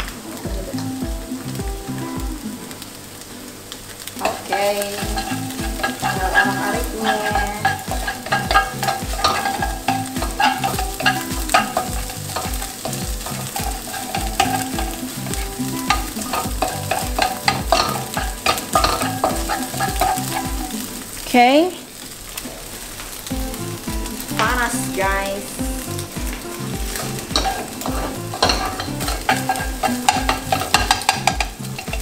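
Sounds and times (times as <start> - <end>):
low regular beat: 0.0 - 2.6, 4.4 - 21.0, 23.3 - 32.0
egg sizzling in hot oil: 0.0 - 32.0
wooden spatula scraping wok: 4.2 - 21.0, 25.8 - 32.0.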